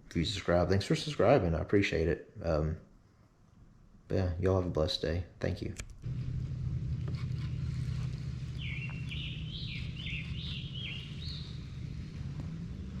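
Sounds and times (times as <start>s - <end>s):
steady low hum: 0.0s - 13.0s
bird chirping: 7.3s - 12.9s.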